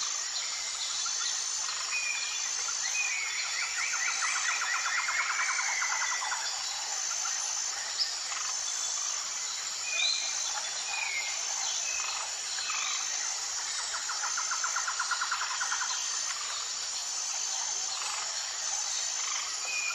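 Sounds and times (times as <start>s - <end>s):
insect chorus: 0.0s - 19.9s.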